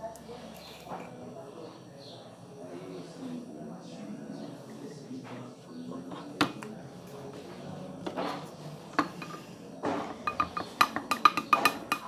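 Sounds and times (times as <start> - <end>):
utensil clinking against bowl: 8.9 - 12.0.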